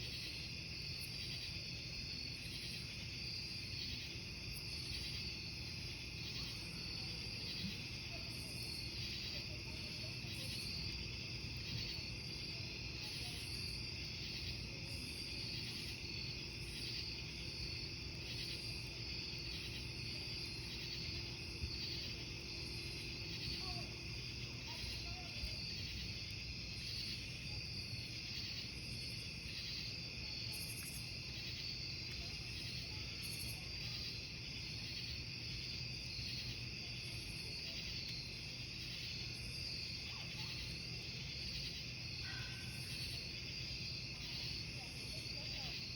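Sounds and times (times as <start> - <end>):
crickets chirping: 0.0 - 45.9
campfire crackling: 0.1 - 29.8.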